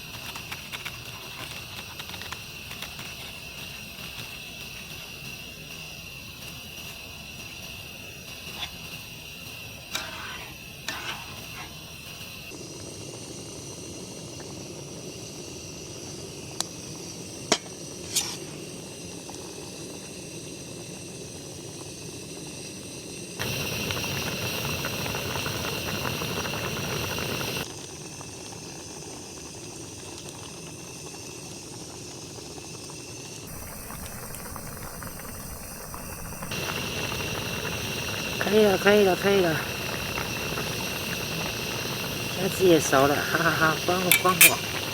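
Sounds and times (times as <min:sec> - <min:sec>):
shrimp bubbling and hissing in a pan: 0:00.0 - 0:44.9.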